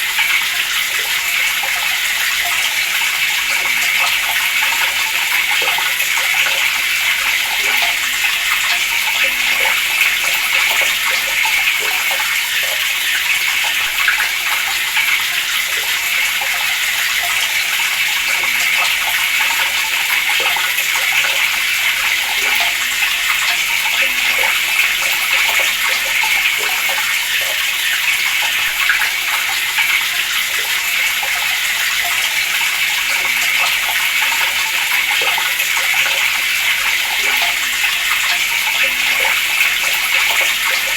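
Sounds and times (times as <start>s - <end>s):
water running from a tap: 0.0s - 40.9s.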